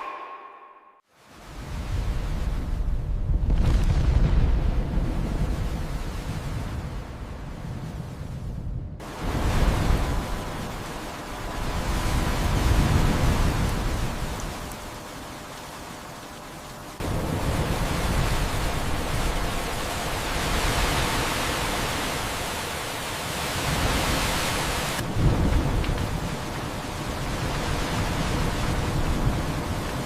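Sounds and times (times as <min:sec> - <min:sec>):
deep thunder rumble: 0:02.8 - 0:10.4, 0:25.0 - 0:26.5
heavy rain: 0:09.0 - 0:30.0.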